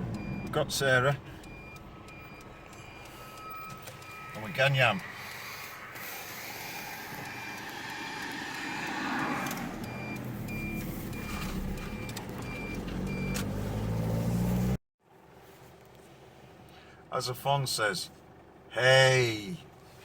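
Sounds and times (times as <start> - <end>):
vehicle engine pulling away: 6.0 - 14.8.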